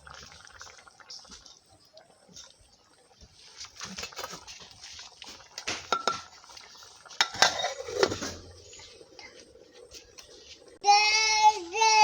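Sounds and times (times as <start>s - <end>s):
pot and utensils clinking: 5.6s - 6.4s, 7.2s - 8.5s.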